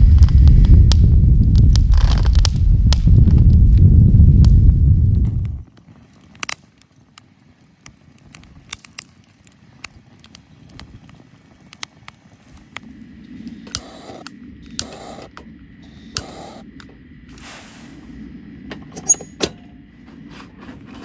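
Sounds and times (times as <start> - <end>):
low rumble: 0.0 - 5.7, 12.3 - 21.0
sharp clicks and cracks: 0.0 - 17.5.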